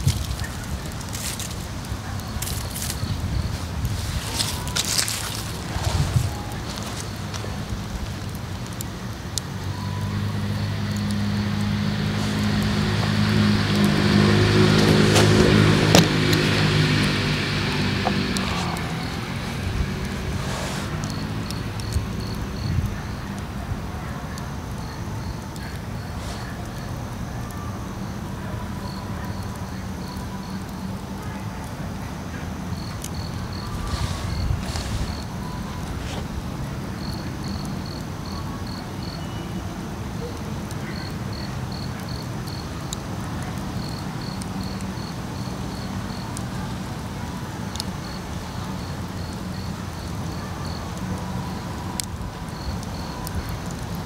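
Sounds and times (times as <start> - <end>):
rustling bursts: 0.0 - 8.7, 33.6 - 36.6
insects chirping: 0.0 - 31.1, 32.0 - 54.0.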